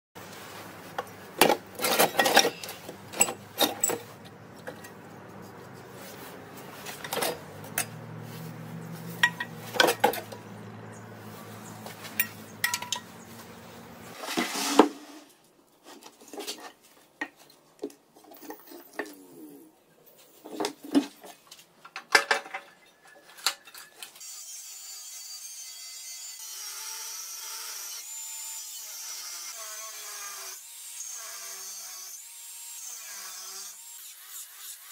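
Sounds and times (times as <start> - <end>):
metal parts clinking: 1.4 - 5.0, 9.1 - 10.4, 12.0 - 13.2.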